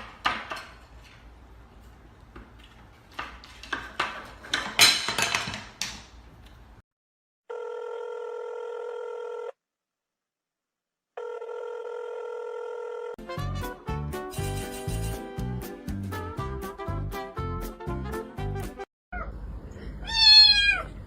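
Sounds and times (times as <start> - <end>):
telephone ringing tone: 7.5 - 9.6, 11.2 - 13.2.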